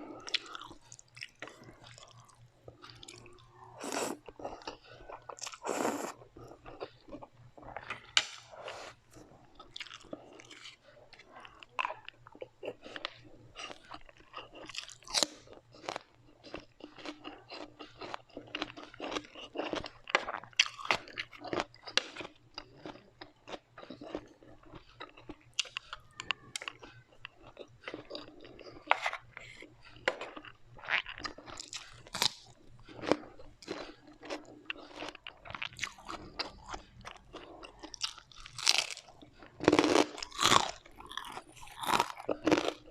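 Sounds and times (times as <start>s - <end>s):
person chewing crunchy food: 0.0s - 42.9s.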